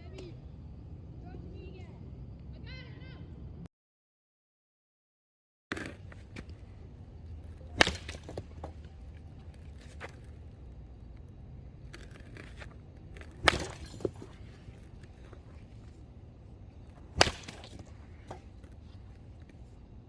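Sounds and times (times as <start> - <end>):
baseball bat cracking ball: 5.8 - 10.8, 11.9 - 19.6.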